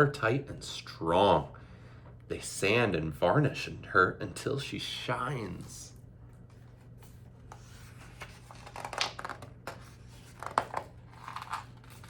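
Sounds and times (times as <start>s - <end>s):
low steady hum: 0.0s - 12.0s
paper rustling: 6.5s - 12.0s.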